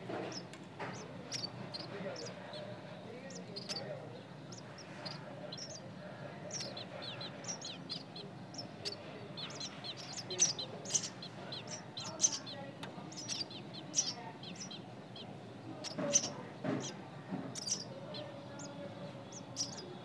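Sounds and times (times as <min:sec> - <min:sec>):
nestling birds chirping: 0:00.0 - 0:20.0.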